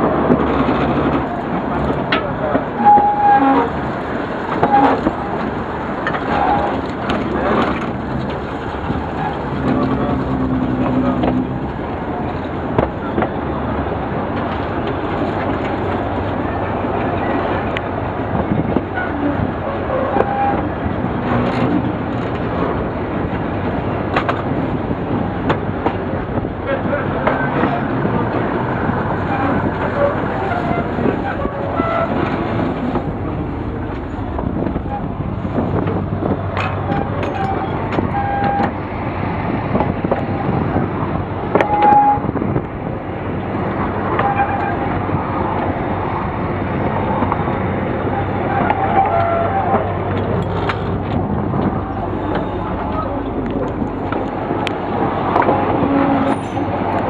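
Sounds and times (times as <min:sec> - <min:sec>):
diesel locomotive working: 0:00.0 - 0:57.0
train wheels rumbling on rails: 0:00.0 - 0:57.0
brief wheel squeals: 0:02.8 - 0:03.7, 0:36.8 - 0:38.8, 0:55.8 - 0:56.8.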